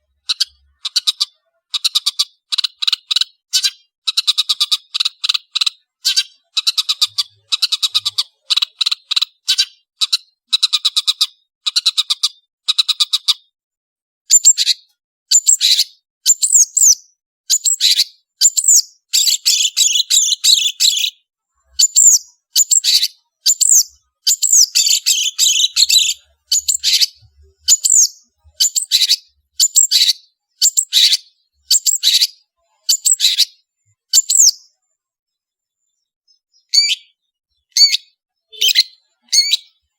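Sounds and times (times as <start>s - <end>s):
bird scratchy chattering: 0.2s - 13.3s, 21.8s - 32.3s, 32.9s - 33.5s.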